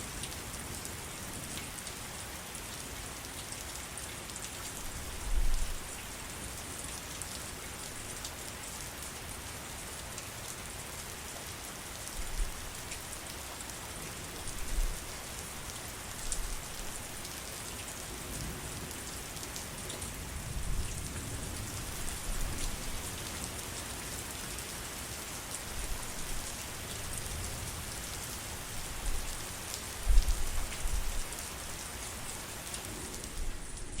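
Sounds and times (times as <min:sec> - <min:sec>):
heavy rain falling: 0:08.3 - 0:34.0.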